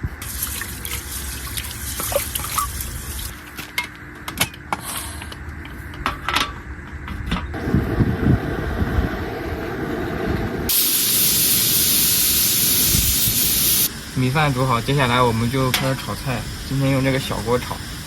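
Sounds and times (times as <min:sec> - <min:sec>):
water trickling and splashing: 0:00.2 - 0:03.4
low steady rushing: 0:07.6 - 0:17.8.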